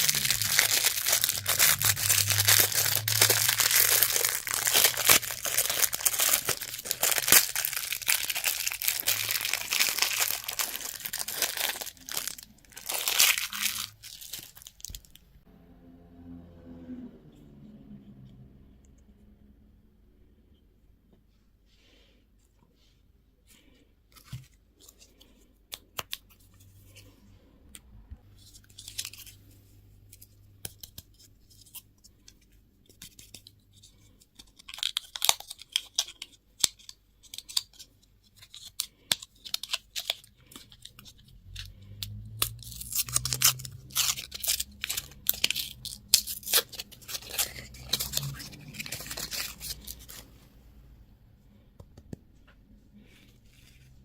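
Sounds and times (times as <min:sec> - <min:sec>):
wrapper crinkling and tearing: 0:00.0 - 0:15.2, 0:28.4 - 0:29.5, 0:33.1 - 0:50.4.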